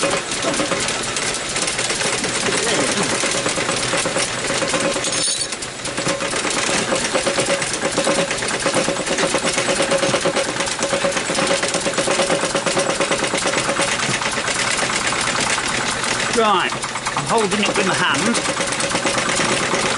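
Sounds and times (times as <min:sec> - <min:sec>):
small petrol engine running: 0:00.0 - 0:19.9.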